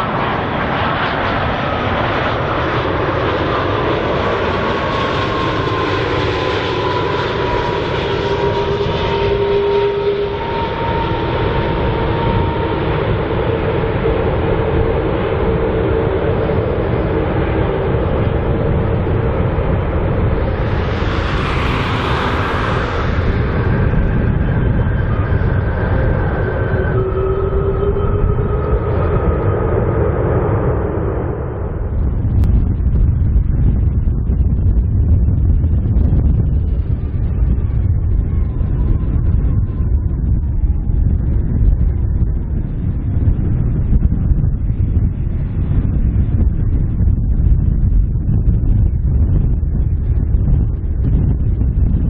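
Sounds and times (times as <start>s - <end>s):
jet engines whining: 0.0s - 32.4s.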